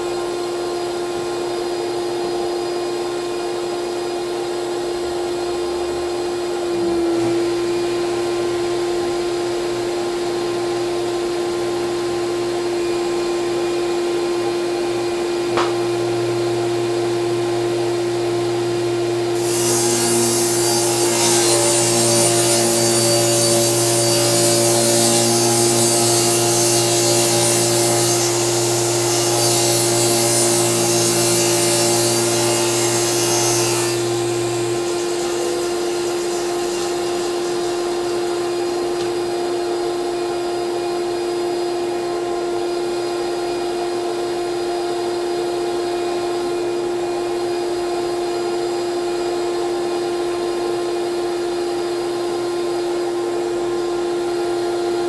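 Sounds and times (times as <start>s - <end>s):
table saw cutting plywood: 6.2s - 48.9s.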